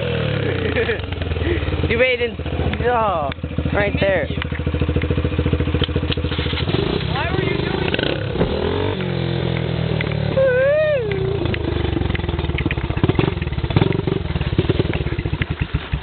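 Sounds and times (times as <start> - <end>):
dirt bike engine putter: 2.6 - 7.2, 11.1 - 16.0
person's wavering call: 10.2 - 11.5.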